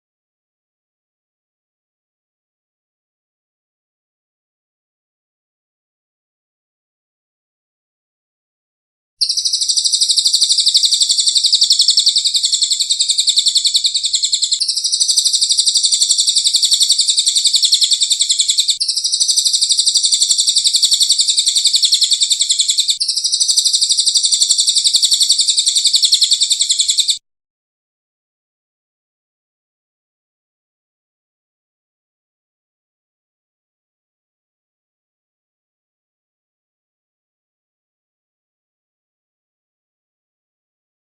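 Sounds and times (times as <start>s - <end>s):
songbird trilling: 9.2s - 27.2s.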